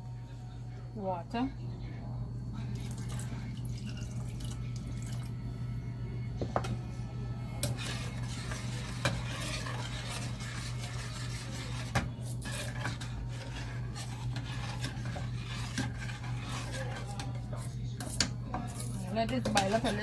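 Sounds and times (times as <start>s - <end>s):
steady low hum: 0.0s - 20.0s
sauce boiling: 2.3s - 20.0s
utensil scraping in a pot: 2.6s - 5.4s, 6.4s - 20.0s
utensil clinking against pot: 7.6s - 20.0s.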